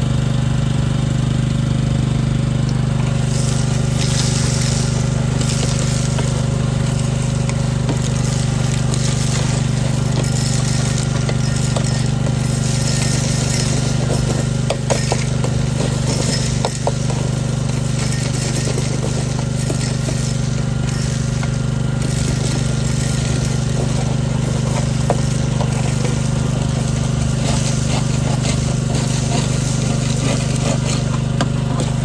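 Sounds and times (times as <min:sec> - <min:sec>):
engine droning: 0:00.0 - 0:32.0.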